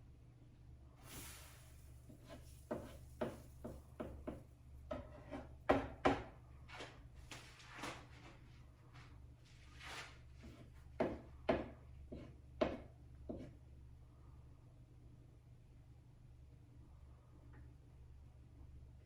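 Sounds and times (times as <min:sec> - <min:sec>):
low steady hum: 0:00.0 - 0:19.0
kitchen knocks and clicks: 0:02.7 - 0:06.4.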